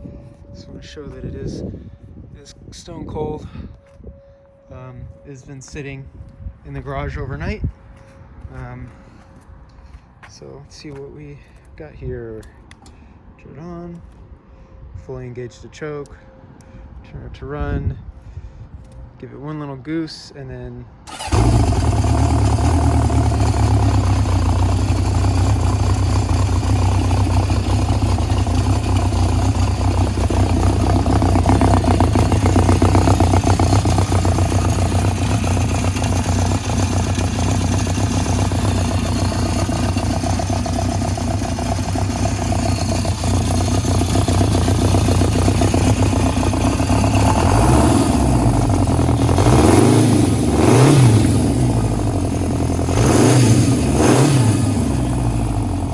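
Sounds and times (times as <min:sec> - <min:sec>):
motorcycle engine fast idle: 0:21.1 - 0:55.9.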